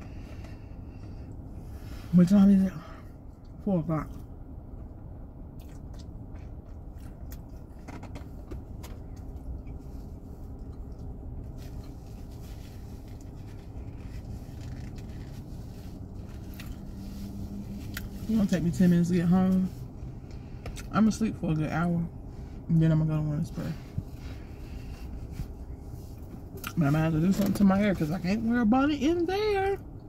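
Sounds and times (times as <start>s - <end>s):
steady low hum: 0.0s - 30.0s
person chewing a burger: 5.4s - 17.0s, 17.8s - 18.1s.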